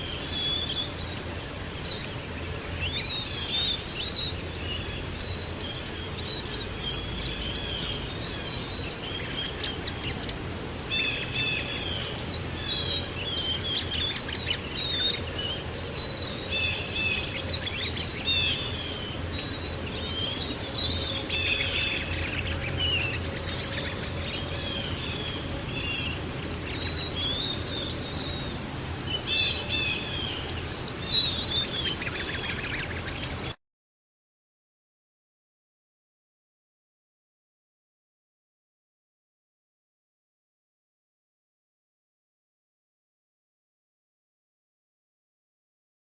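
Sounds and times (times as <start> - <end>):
songbirds chirping and singing: 0.0 - 33.6.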